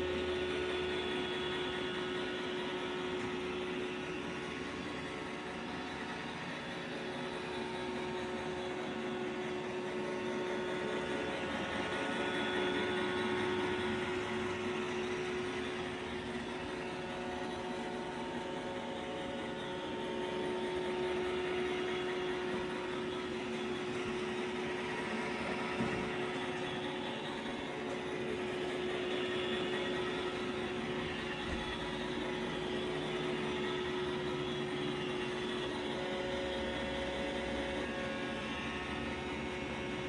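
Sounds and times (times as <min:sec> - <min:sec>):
robot vacuum motor whine: 0:00.0 - 0:40.0.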